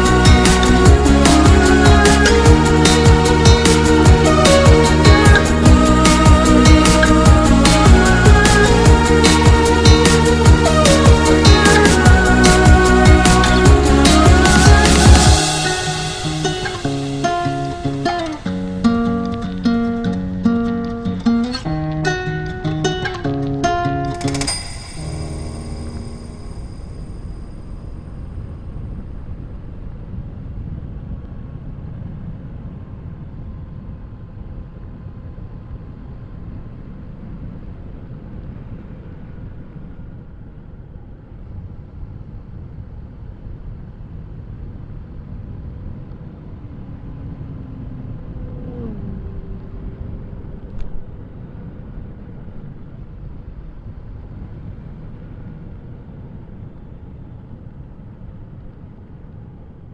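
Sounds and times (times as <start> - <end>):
motorcycle engine running: 0.0 - 17.8
wind rushing over microphone: 25.0 - 59.9.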